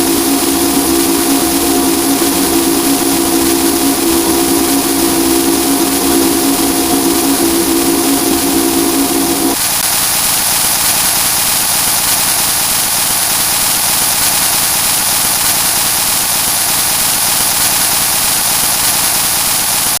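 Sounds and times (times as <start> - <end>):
steady low tones: 0.0 - 9.6
distorted electronic noise: 0.0 - 13.5.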